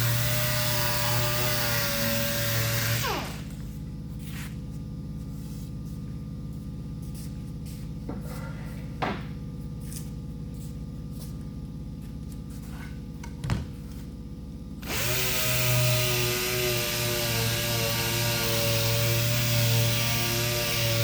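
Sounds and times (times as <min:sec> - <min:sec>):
electric sander running: 0:00.0 - 0:03.6, 0:14.8 - 0:21.0
steady low hum: 0:00.0 - 0:19.8.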